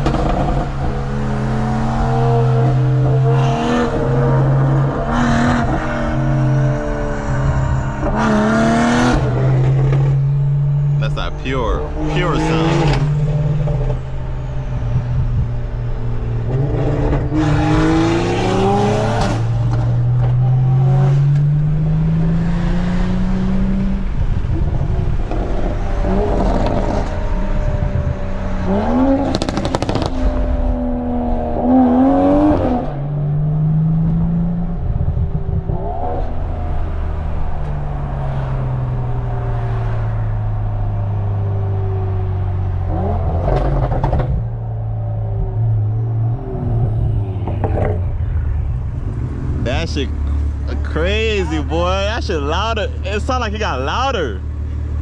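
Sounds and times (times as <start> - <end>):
car exhaust accelerating: 0.0 - 55.0
exhaust crackles: 46.7 - 55.0.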